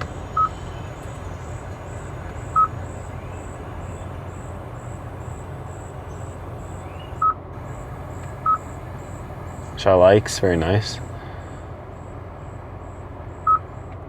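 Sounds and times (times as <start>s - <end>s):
insect-like chirps: 0.0s - 11.1s
steady hiss: 0.0s - 12.8s.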